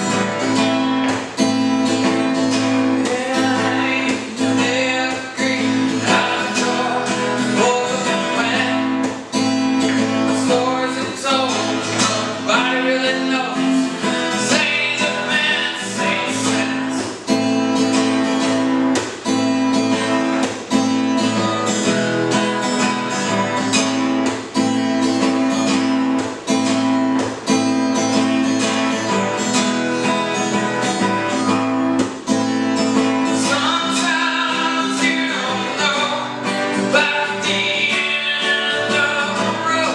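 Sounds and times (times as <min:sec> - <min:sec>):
acoustic guitar strumming: 0:00.0 - 0:39.9
person singing: 0:02.8 - 0:17.3, 0:33.2 - 0:39.9.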